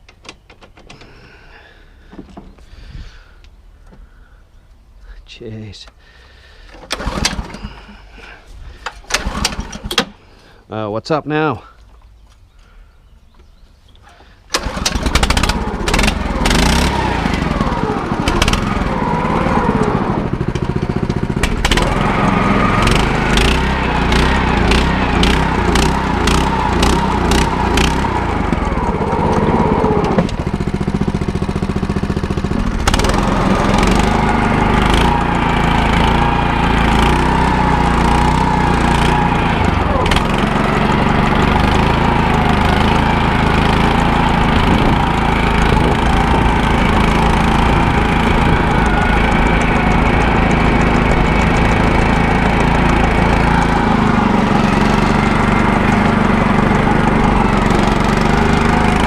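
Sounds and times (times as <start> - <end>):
small engine running: 6.9 - 9.9, 14.5 - 59.0
sharp clicks: 47.1 - 53.8.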